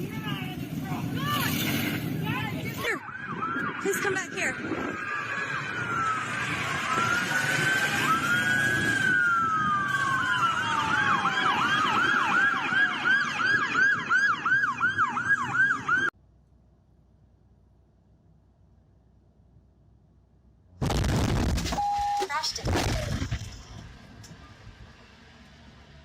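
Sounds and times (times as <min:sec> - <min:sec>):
road noise: 0:00.0 - 0:26.0
emergency vehicle siren: 0:02.6 - 0:16.2.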